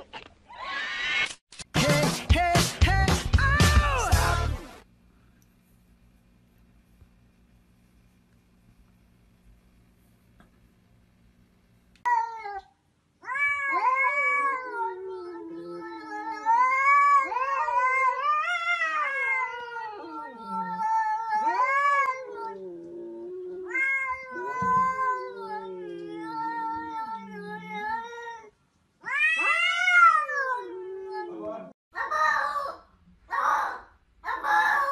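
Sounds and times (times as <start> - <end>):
cat yowling: 12.1 - 34.9.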